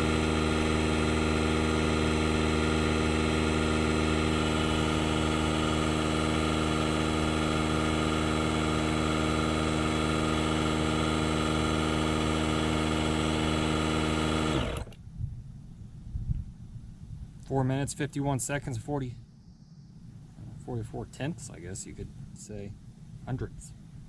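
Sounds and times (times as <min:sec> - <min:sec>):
air compressor running: 0:00.0 - 0:15.0.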